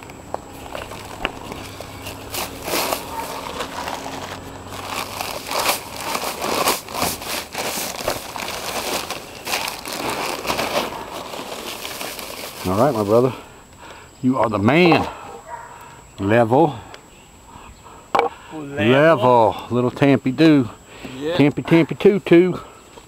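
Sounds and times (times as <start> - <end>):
shovel scraping dirt and gravel: 0.5 - 13.2.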